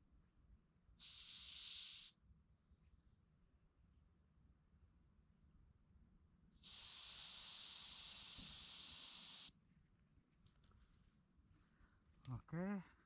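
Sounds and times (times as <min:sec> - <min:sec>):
air hissing from tyre valve: 0:01.0 - 0:02.2, 0:06.6 - 0:09.6.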